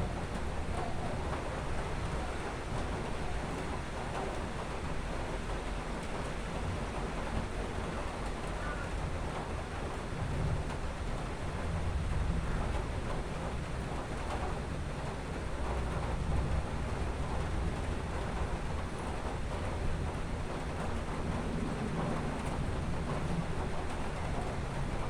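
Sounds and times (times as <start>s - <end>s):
distant thunder rumbling: 6.7s - 25.0s.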